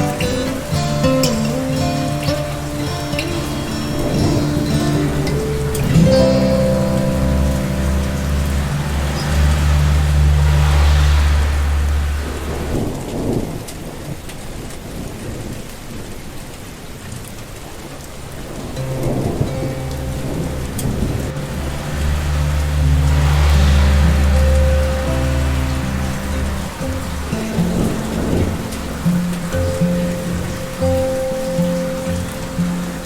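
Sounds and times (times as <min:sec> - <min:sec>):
rain falling: 0:00.0 - 0:33.0
rolling thunder: 0:03.7 - 0:15.5.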